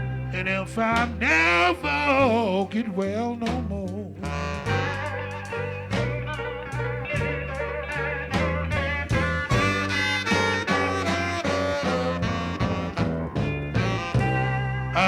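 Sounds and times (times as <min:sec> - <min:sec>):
electric blues band playing: 0:00.0 - 0:15.0
guitar with bent notes: 0:00.0 - 0:15.0.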